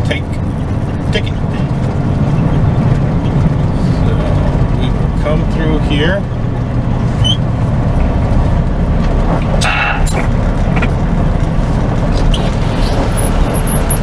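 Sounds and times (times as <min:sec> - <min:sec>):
truck engine low rumble: 0:00.0 - 0:14.0
brief air hiss: 0:09.6 - 0:10.2.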